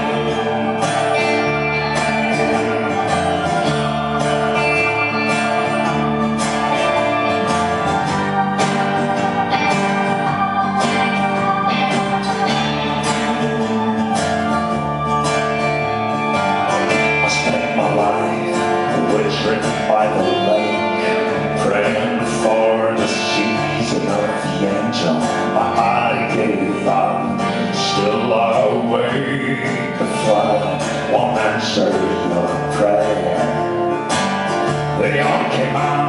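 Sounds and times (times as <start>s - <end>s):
live band playing instrumental: 0.0s - 19.2s.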